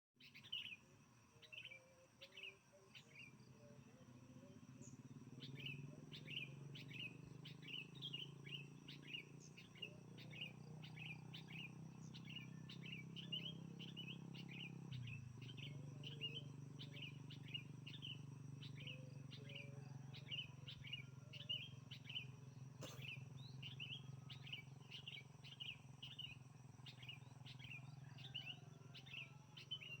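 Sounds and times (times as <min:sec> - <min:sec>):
bird chirping: 0:00.2 - 0:30.0.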